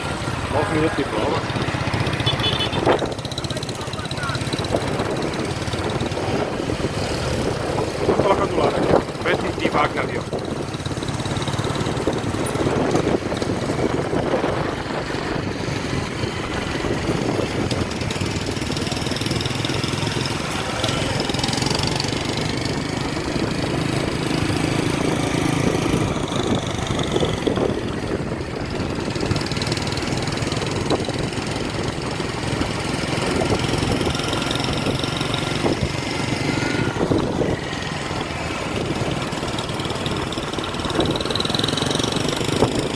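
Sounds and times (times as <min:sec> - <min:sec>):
vehicle engine humming: 0:00.0 - 0:42.9.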